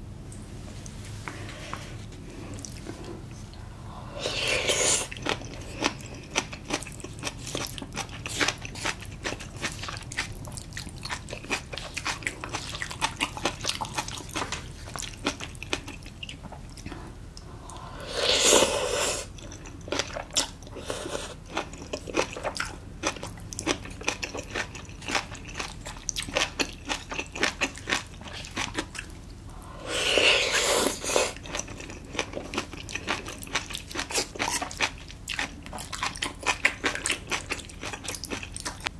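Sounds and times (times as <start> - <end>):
close chewing with wet mouth clicks: 5.0 - 17.0, 21.4 - 29.2, 31.2 - 38.9.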